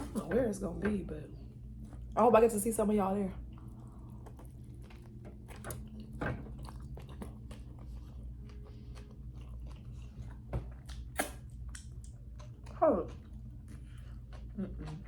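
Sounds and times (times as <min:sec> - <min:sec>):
person chewing crunchy food: 0:03.4 - 0:15.0.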